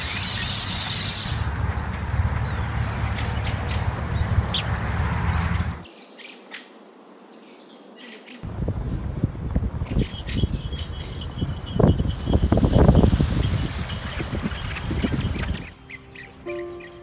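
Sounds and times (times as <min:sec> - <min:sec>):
birds chirping and calling: 0:00.0 - 0:06.7, 0:09.6 - 0:17.0
wind rumble on microphone: 0:08.4 - 0:15.8.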